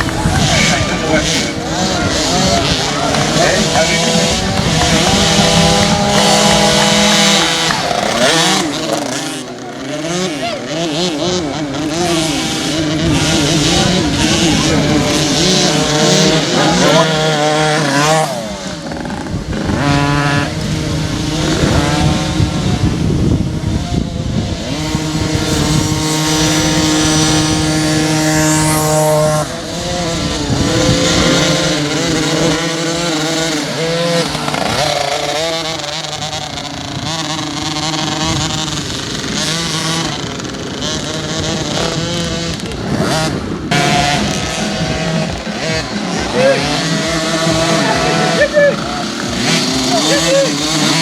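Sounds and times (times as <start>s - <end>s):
motocross bike engines revving: 0.0s - 51.0s.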